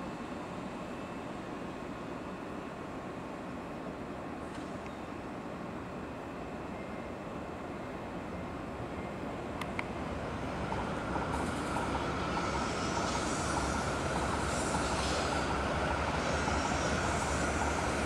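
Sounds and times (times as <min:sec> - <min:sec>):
train rumble and whine: 0:00.0 - 0:18.0
rushing hiss: 0:11.2 - 0:18.0.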